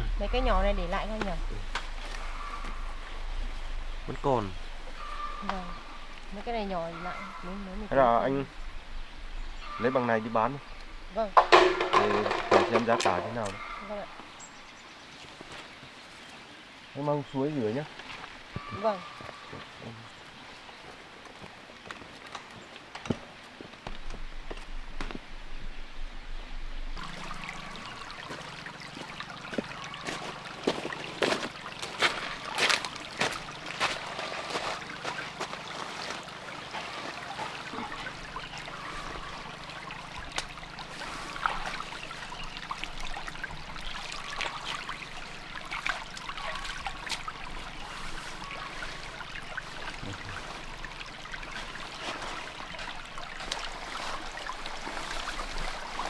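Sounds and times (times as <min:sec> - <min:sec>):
sharp splashes and knocks: 0:00.0 - 0:07.4, 0:10.4 - 0:14.4, 0:26.8 - 0:56.0
stream water trickling: 0:00.0 - 0:56.0.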